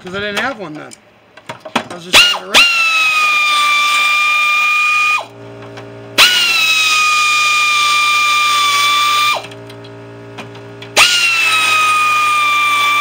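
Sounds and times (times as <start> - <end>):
power tool motor whining: 2.2 - 5.4, 6.2 - 9.6, 10.9 - 13.0.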